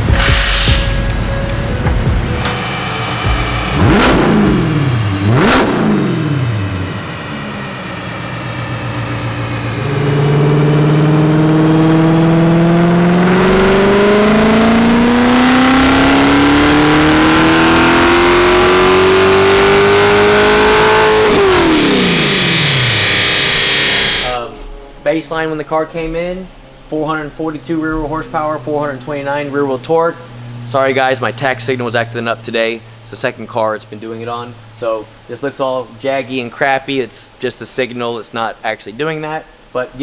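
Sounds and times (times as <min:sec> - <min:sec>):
car engine revving: 0:00.0 - 0:24.4, 0:27.9 - 0:35.3.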